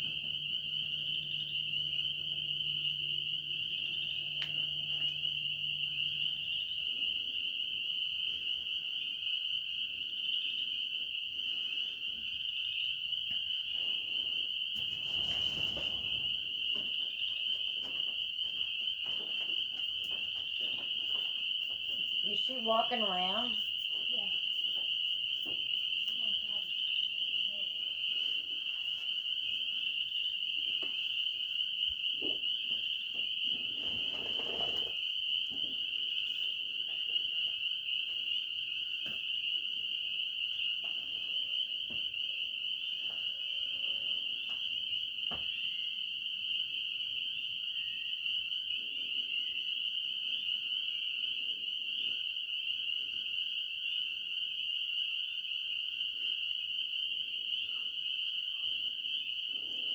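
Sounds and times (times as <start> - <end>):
frogs and insects calling: 0.0 - 59.9
rustle: 14.8 - 16.3.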